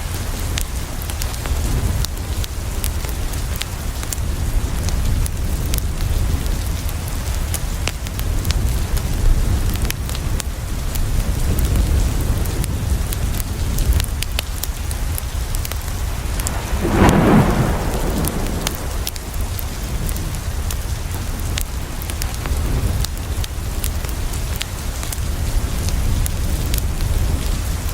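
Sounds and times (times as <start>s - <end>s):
rain on a window: 0.0s - 27.9s
wood fire crackling: 13.1s - 27.7s
thunder rumble: 15.6s - 20.8s.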